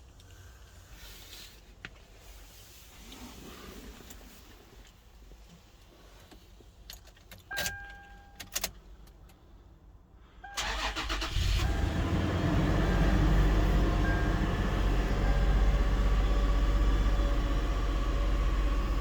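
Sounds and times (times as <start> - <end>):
car engine starting and running: 10.5 - 19.0.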